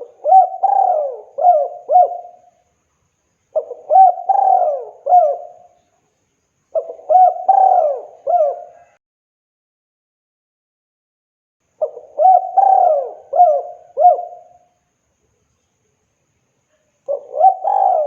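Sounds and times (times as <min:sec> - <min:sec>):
dove cooing: 0:00.0 - 0:02.5, 0:03.5 - 0:05.8, 0:06.7 - 0:09.0, 0:11.8 - 0:14.7, 0:17.1 - 0:18.0.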